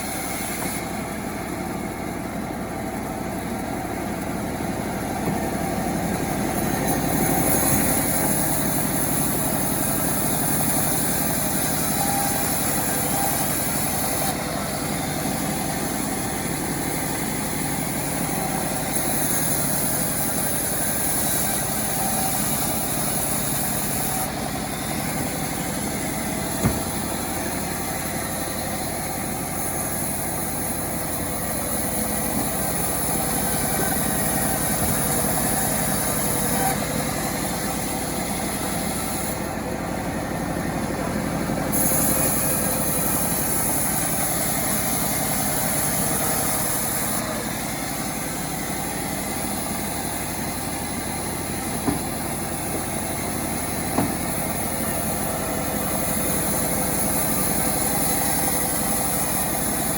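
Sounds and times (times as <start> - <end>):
chainsaw engine running: 0.0 - 59.9
sharp knock: 26.6 - 27.1, 51.8 - 52.2, 54.0 - 54.3.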